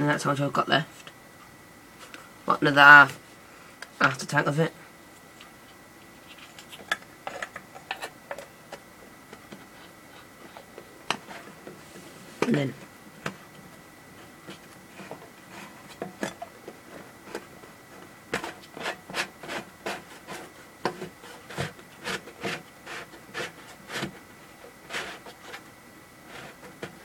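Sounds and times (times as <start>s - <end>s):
rubbing scrapes and clicks: 5.4s - 8.8s, 18.3s - 24.2s, 24.8s - 25.6s, 26.3s - 27.0s.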